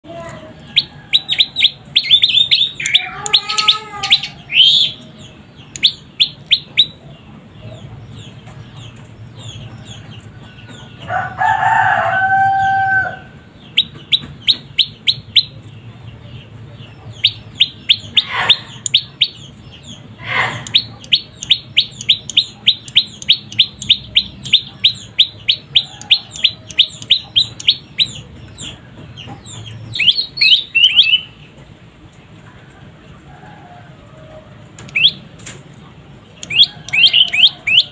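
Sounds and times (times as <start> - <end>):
bird chirping: 0.0 - 37.9
rooster crowing: 0.6 - 2.0, 11.0 - 13.5, 25.8 - 27.1, 36.5 - 37.9.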